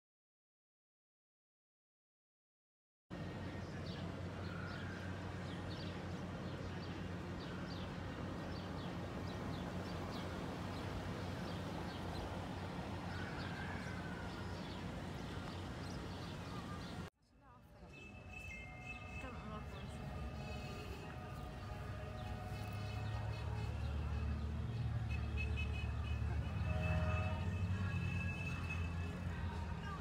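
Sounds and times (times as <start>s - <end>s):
outdoor background noise: 3.1s - 30.0s
small birds chirping: 3.6s - 17.1s.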